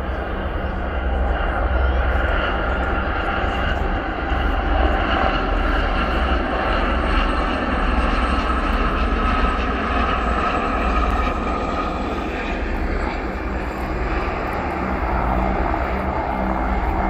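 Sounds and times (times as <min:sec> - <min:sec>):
helicopter flying past: 0:00.0 - 0:17.0.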